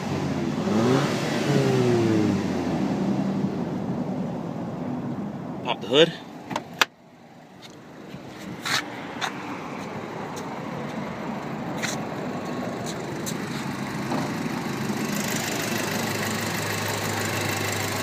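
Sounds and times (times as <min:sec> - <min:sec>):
car engine idling: 0:09.8 - 0:18.0.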